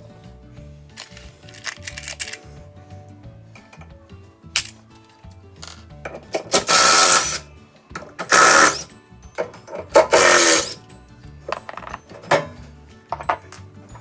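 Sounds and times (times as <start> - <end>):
background music: 0.0 - 14.0
power tool whirring: 6.5 - 7.4, 8.2 - 8.9, 9.9 - 10.8.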